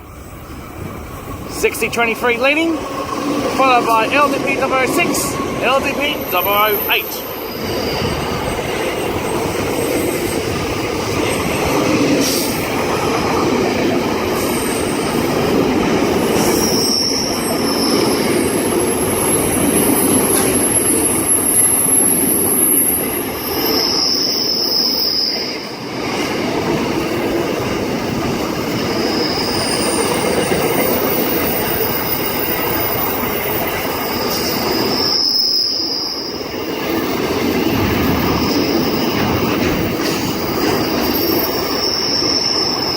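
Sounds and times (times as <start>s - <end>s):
freight train rumbling over rails: 0.0s - 42.9s
wheel squeals: 5.0s - 12.6s, 16.2s - 25.7s, 28.6s - 42.9s.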